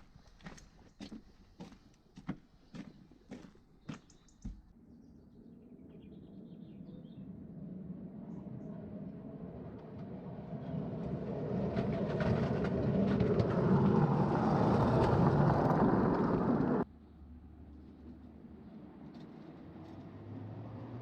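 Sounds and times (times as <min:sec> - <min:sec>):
train wheels rumbling on rails: 0:09.4 - 0:16.8
wheels clicking over rail joints: 0:09.6 - 0:16.8.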